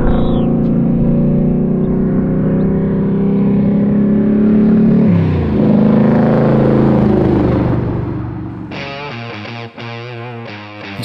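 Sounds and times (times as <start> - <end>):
car engine pulling hard: 0.0 - 8.7.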